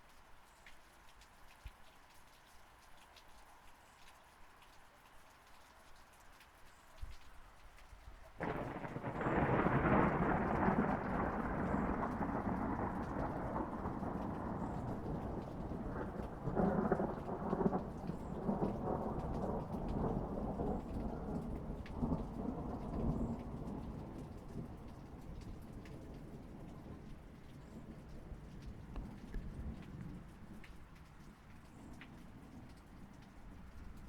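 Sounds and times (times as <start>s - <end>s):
steady rain: 0.0s - 34.0s
rolling thunder: 8.4s - 30.3s.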